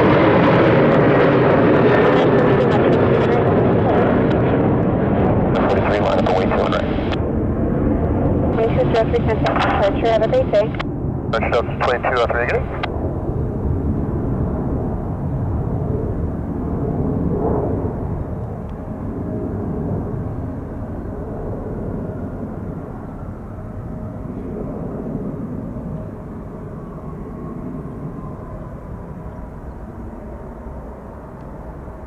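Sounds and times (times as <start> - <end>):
jet engines rushing: 0.0 - 32.0.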